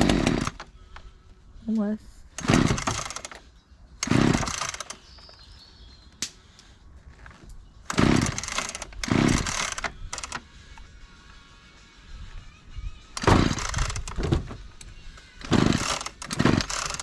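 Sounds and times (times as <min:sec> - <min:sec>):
small petrol engine firing: 0:00.0 - 0:00.7, 0:02.4 - 0:03.4, 0:04.0 - 0:05.1, 0:07.8 - 0:10.4, 0:13.2 - 0:14.6, 0:15.4 - 0:17.0.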